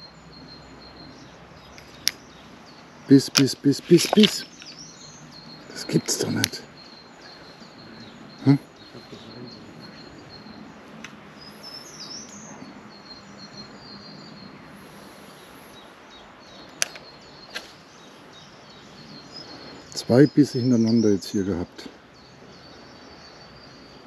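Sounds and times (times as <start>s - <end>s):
outdoor background hiss: 0.0s - 24.0s
songbirds chirping: 0.0s - 24.0s
sharp clicks: 3.3s - 4.9s, 5.9s - 6.6s, 16.8s - 17.7s.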